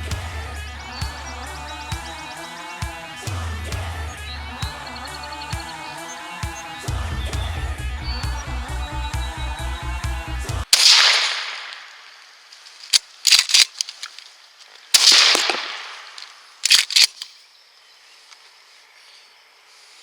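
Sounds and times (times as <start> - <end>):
shotgun blast: 10.7 - 12.0, 15.0 - 16.2
sharp clicks: 10.8 - 17.4.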